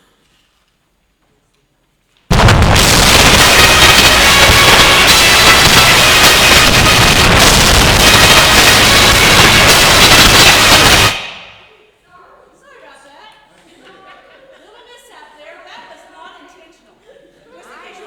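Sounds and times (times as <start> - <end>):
heavily distorted music: 2.3 - 11.6.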